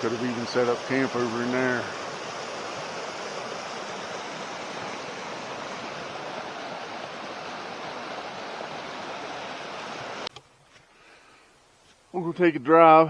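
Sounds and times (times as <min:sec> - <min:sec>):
mountain river rushing: 0:00.0 - 0:10.3.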